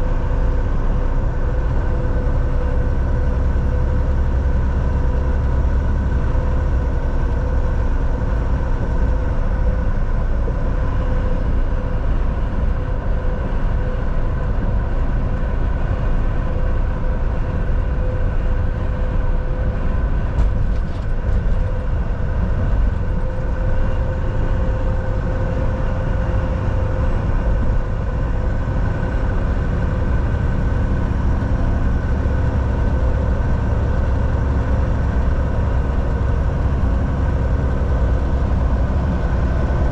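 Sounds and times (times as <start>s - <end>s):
constant hum: 0.0s - 39.9s
truck engine and road drone: 0.0s - 39.9s.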